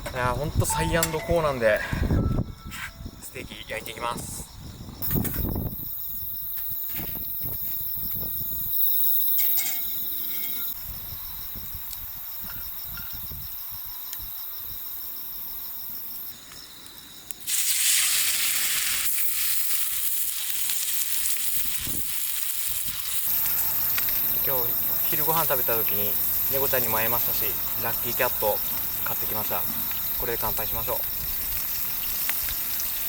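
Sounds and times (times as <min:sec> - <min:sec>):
insects chirping: 0:00.0 - 0:33.0
steak sizzling: 0:17.2 - 0:33.0.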